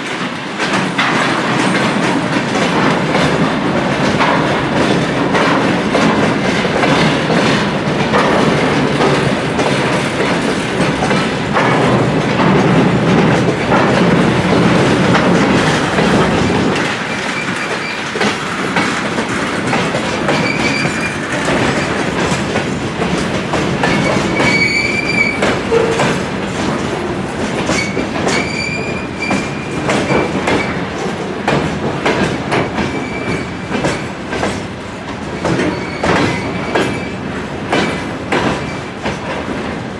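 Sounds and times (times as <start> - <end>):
train wheels clattering over rail joints: 0.0 - 39.9.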